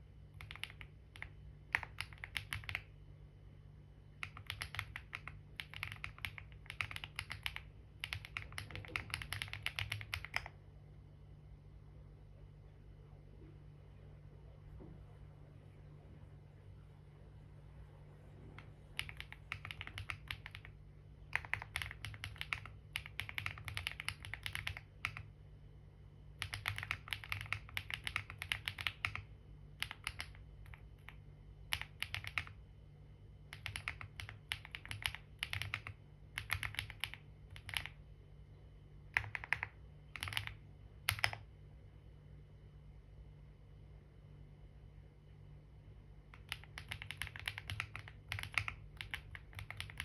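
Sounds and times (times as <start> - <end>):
typing on computer keyboard: 0.4 - 2.9, 4.2 - 10.6, 18.6 - 25.3, 26.4 - 32.6, 33.5 - 38.0, 39.1 - 41.5, 46.4 - 50.0.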